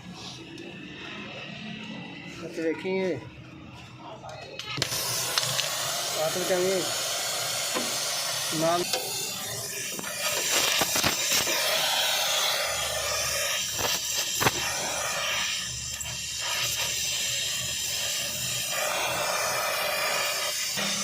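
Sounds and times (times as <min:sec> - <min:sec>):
compressed air hissing: 0:04.6 - 0:21.0.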